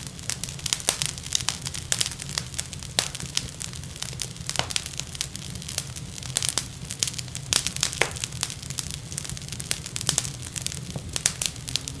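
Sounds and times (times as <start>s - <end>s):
wood fire crackling and popping: 0.0s - 12.0s.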